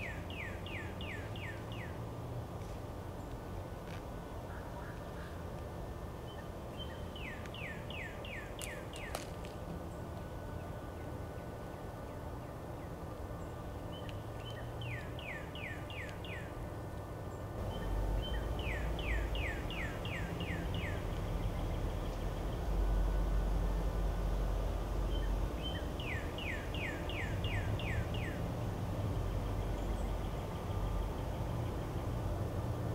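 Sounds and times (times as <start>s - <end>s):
songbird whistling: 13.9s - 16.5s, 17.7s - 21.0s, 25.1s - 28.4s.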